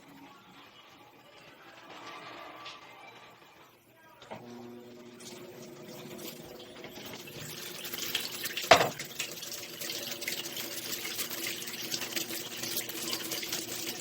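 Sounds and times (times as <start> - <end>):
water running into washing machine: 4.3 - 14.0.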